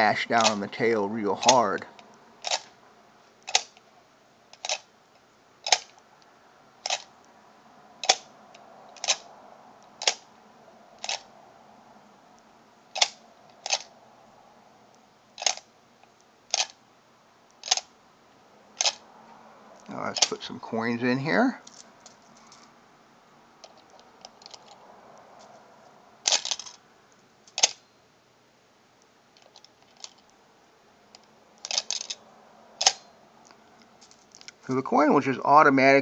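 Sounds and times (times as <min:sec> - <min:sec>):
mechanical bank lever clicking: 0:01.4 - 0:01.8, 0:02.4 - 0:02.7, 0:03.5 - 0:03.8, 0:09.0 - 0:09.2, 0:18.8 - 0:19.0, 0:32.8 - 0:33.1.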